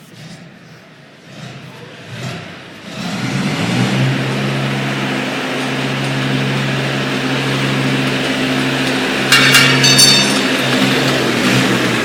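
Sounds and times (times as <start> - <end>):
ringing metallic clinks: 9.3 - 10.6.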